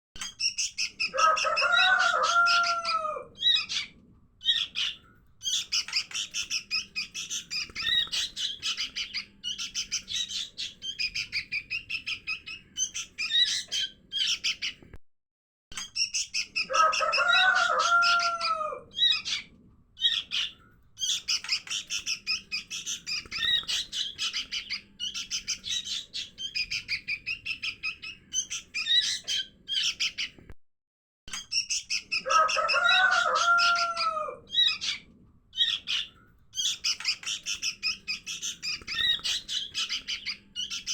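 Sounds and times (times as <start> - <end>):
young bulbuls high chirps: 0.2 - 14.8, 15.8 - 30.4, 31.3 - 40.9.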